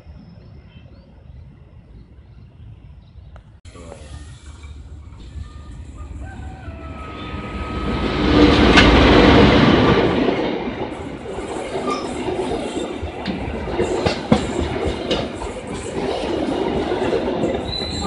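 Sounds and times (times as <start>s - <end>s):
diesel train passing: 0.0s - 18.0s
wheels clacking over rail joints: 7.8s - 18.0s.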